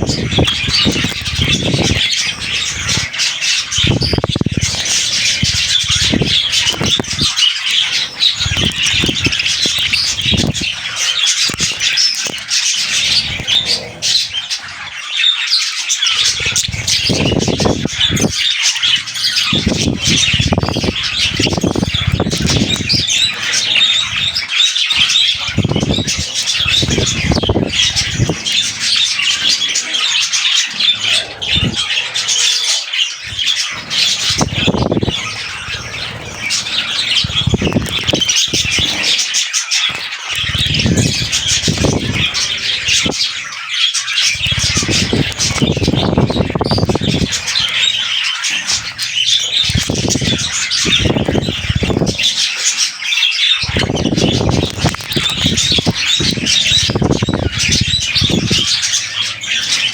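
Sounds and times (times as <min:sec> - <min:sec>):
budgerigars chattering: 0:00.0 - 0:59.9.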